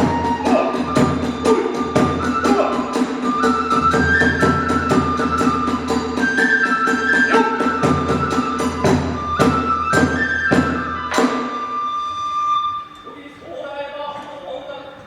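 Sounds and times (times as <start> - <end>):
drum strokes: 0.0 - 12.0
bamboo flute melody: 0.0 - 13.3.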